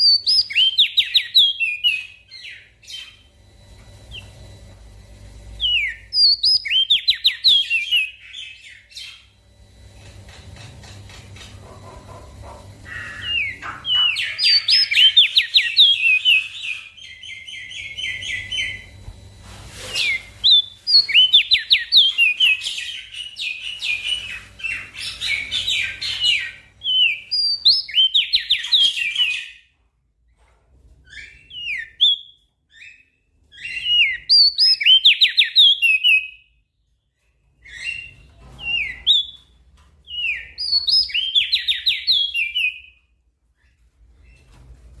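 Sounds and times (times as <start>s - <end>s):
small songbird singing: 0.0s - 3.3s, 5.6s - 9.3s, 12.8s - 18.9s, 20.0s - 29.6s, 40.1s - 43.0s.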